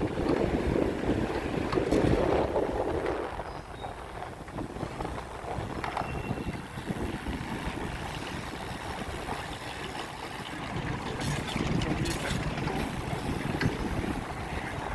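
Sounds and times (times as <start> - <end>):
wind buffeting microphone: 0.0 - 14.9
light clicks and rattles: 10.9 - 12.9.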